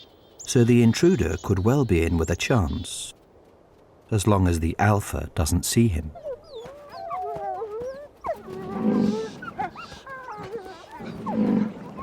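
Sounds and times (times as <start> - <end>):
wolves howling: 6.1 - 12.0
wolf growling: 6.2 - 12.0.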